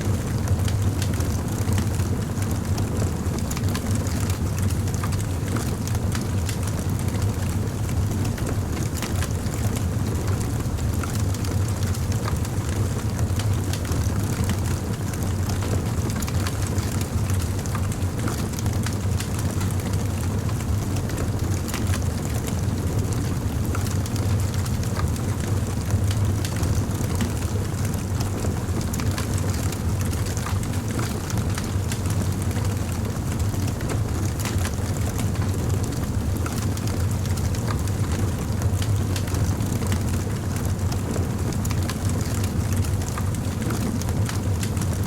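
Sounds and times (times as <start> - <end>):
wood fire crackling: 0.1 - 45.0.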